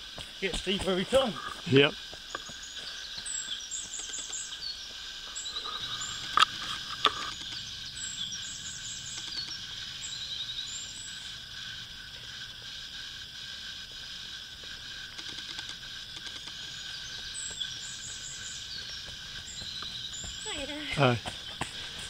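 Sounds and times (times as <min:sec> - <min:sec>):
steady background hiss: 0:00.0 - 0:22.0
birds chirping and trilling: 0:00.4 - 0:12.7, 0:14.4 - 0:22.0
sharp clicks: 0:06.2 - 0:07.6, 0:09.1 - 0:09.6, 0:15.1 - 0:16.6.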